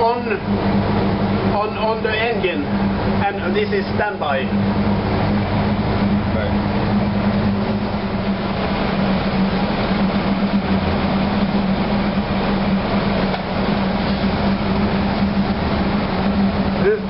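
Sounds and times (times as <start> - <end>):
dense machinery noise: 0.0 - 17.0
marine diesel engine drone: 0.0 - 17.0.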